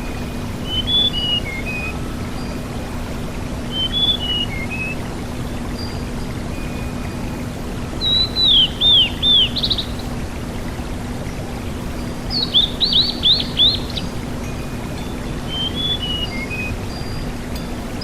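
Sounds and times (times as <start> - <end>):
bird whistling downward-sliding notes: 0.0 - 3.0, 3.7 - 5.0, 8.0 - 10.1, 12.2 - 14.2, 15.5 - 17.3
steady hiss: 0.0 - 18.0.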